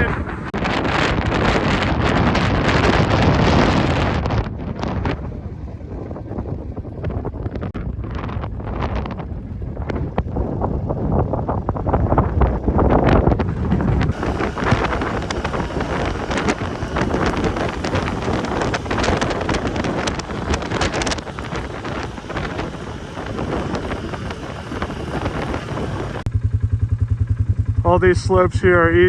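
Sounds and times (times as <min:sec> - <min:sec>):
gusting wind buffeting microphone: 0:00.0 - 0:26.6
engine idling: 0:12.1 - 0:29.0.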